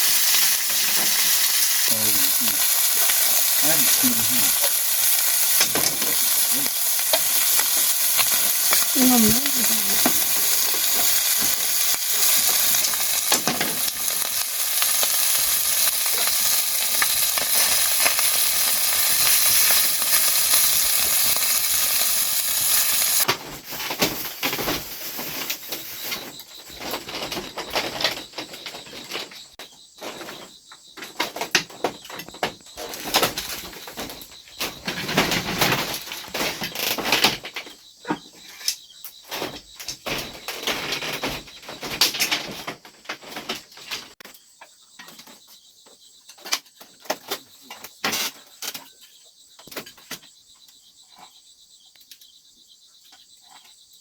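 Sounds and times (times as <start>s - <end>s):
food sizzling in hot oil: 0.0s - 23.3s.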